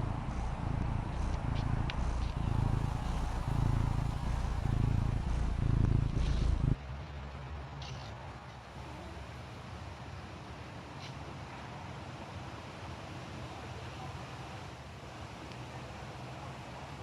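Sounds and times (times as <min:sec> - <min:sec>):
cat purring: 0:00.0 - 0:06.8.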